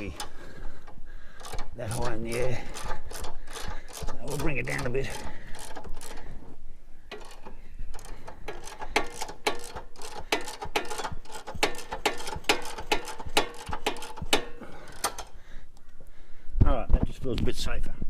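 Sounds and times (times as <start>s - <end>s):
ratchet clicking: 0.0s - 6.4s, 7.1s - 15.4s.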